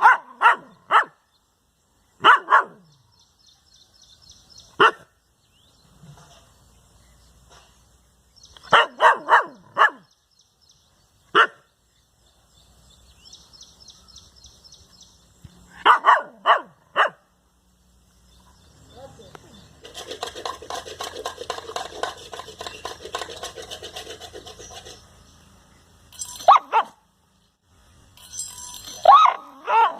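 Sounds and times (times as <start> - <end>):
dog barking: 0.0 - 1.2, 2.2 - 2.9, 4.8 - 5.1, 8.7 - 10.1, 11.3 - 11.6, 15.8 - 17.2, 26.5 - 27.0, 29.0 - 29.9.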